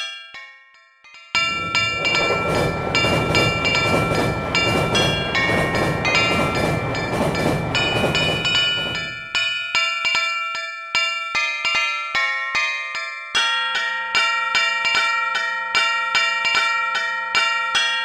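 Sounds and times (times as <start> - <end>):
train rumbling past: 1.4 - 9.4
crossing warning bell ringing: 1.4 - 9.9.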